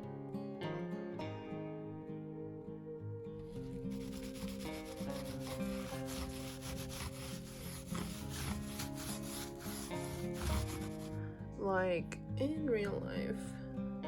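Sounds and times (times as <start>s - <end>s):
acoustic guitar music: 0.0s - 14.0s
paintbrush scrubbing strokes: 3.6s - 11.2s.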